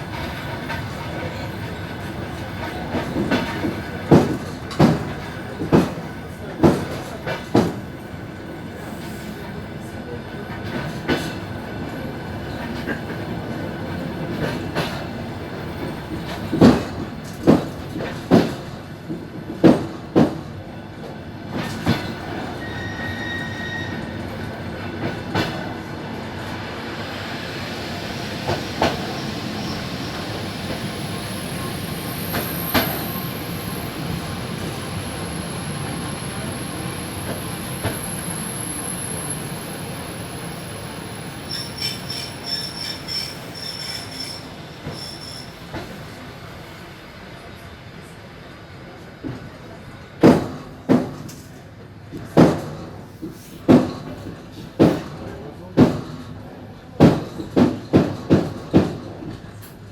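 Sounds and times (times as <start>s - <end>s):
train wheels rumbling on rail: 0.0s - 59.9s
faint wheel squeal: 22.5s - 24.3s, 40.7s - 45.9s.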